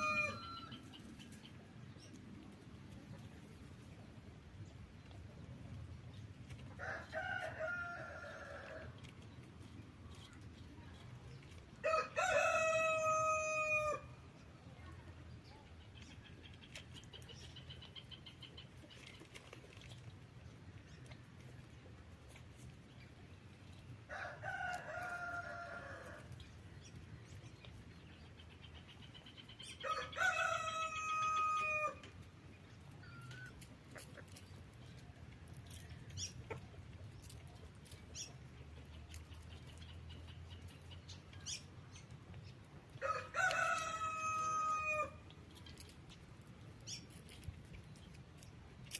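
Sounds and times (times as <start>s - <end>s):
rooster crowing: 0.0s - 0.8s, 11.8s - 14.1s, 29.8s - 32.0s, 43.0s - 45.2s.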